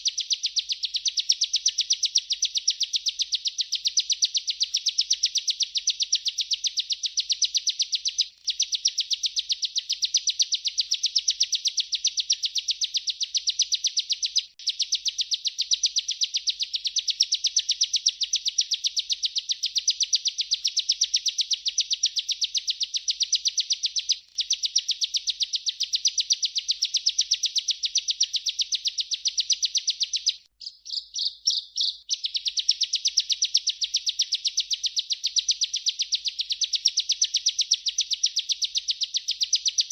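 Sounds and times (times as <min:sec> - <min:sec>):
bird singing rolling trill: 0:21.8 - 0:37.3.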